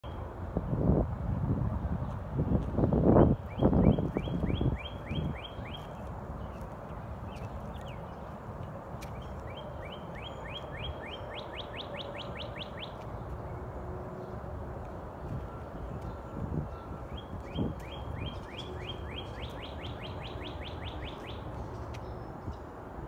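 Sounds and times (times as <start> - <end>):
wind bumps on microphone: 0.5 - 5.8
songbird whistling: 3.5 - 6.0, 9.2 - 13.0, 17.1 - 21.5.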